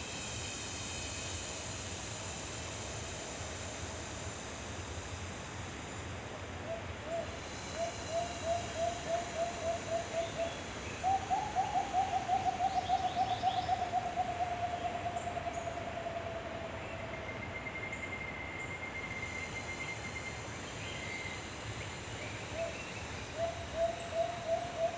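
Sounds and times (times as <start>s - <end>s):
background hiss: 0.0s - 24.9s
bird hooting: 6.6s - 17.6s, 22.5s - 24.9s.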